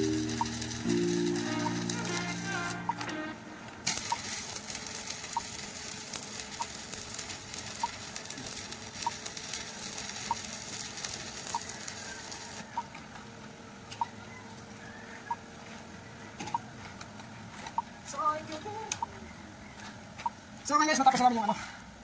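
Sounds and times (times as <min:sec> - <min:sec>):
welding arc crackling: 0:00.0 - 0:12.7.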